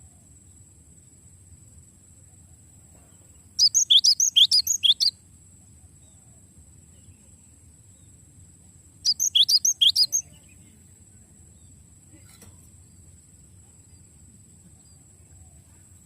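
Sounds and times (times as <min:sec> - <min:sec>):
bird singing rapid high notes: 0:03.6 - 0:05.1, 0:09.0 - 0:10.5.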